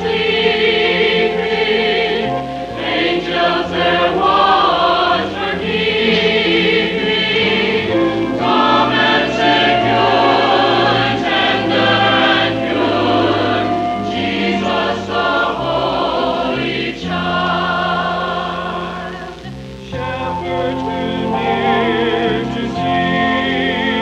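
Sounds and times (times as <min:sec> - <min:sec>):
choir singing sustained chords: 0:00.0 - 0:24.0
low accompaniment notes: 0:00.0 - 0:24.0.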